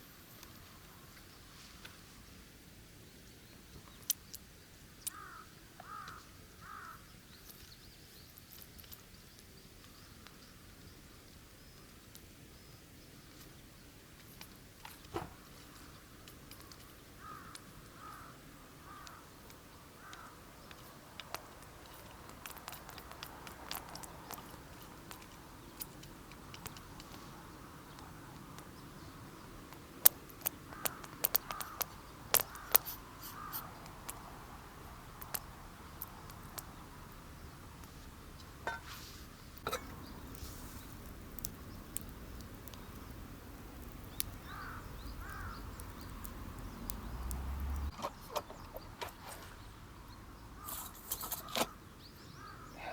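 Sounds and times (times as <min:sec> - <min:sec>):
sharp clicks and crackles: 0:03.8 - 0:05.2, 0:05.8 - 0:10.4, 0:14.2 - 0:27.2, 0:29.6 - 0:37.2, 0:39.6 - 0:49.7
bird calling: 0:05.0 - 0:07.1, 0:15.1 - 0:22.2, 0:30.4 - 0:33.8, 0:43.8 - 0:52.9.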